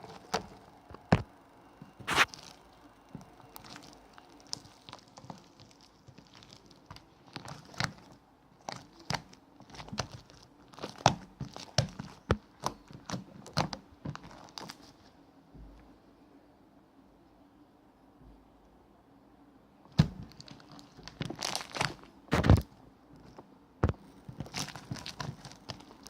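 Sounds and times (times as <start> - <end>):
crinkling and crackling clicks: 2.0 - 15.1, 19.9 - 26.0.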